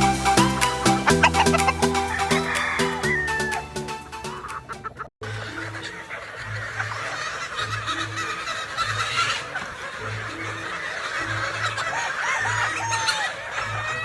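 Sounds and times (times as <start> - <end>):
background music with bass: 0.0 - 5.1
chickens clucking: 0.0 - 14.0.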